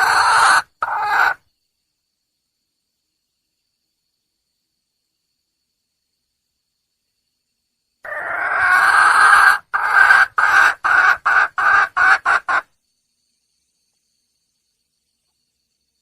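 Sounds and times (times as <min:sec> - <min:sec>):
junglefowl hen calling: 0:00.0 - 0:01.4, 0:08.0 - 0:12.7.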